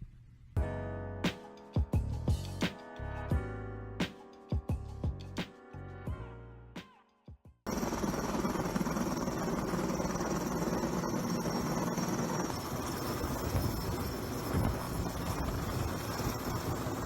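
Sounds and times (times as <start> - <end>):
helicopter engine and rotor: 7.7 - 17.0.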